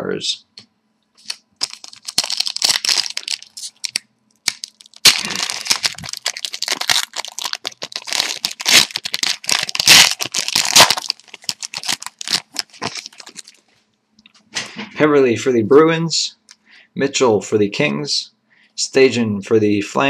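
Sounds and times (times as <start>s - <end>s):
card pack wrappers tearing and crinkling: 1.2s - 13.6s.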